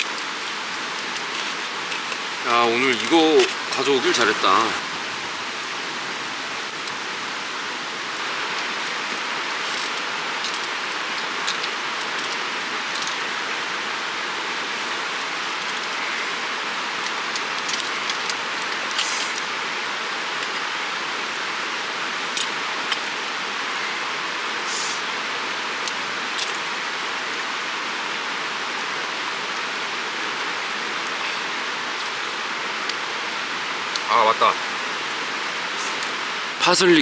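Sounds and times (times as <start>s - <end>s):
creek rushing: 0.0s - 37.0s.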